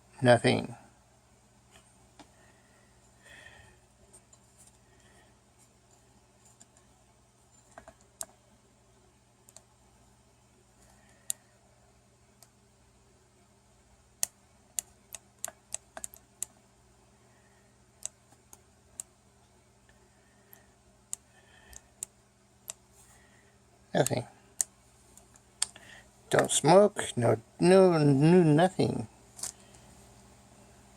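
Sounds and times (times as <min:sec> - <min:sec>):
faint steady hum: 0:00.0 - 0:30.9
sharp clicks and taps: 0:14.2 - 0:16.6.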